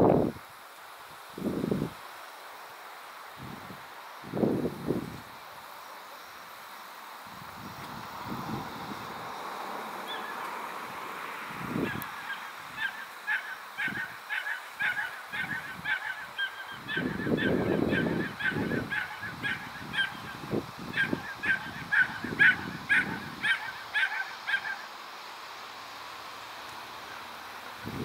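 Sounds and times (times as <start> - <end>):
wind gusts on microphone: 0.0 - 0.6, 1.2 - 2.1, 3.3 - 5.6, 7.2 - 24.7, 27.6 - 28.0
bird calling: 10.0 - 10.5, 11.8 - 25.0.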